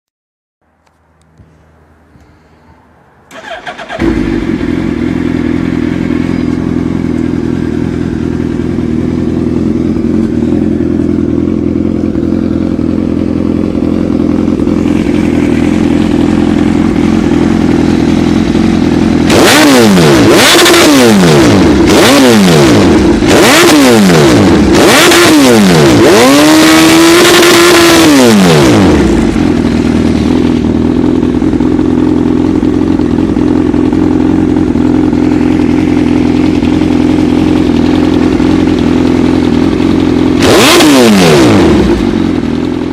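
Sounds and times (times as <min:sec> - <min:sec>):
engine cranking and starting: 0:03.3 - 0:04.4
engine idling: 0:03.3 - 0:26.5, 0:27.1 - 0:42.9
engine revving in quick blips: 0:19.3 - 0:29.1, 0:40.4 - 0:42.1.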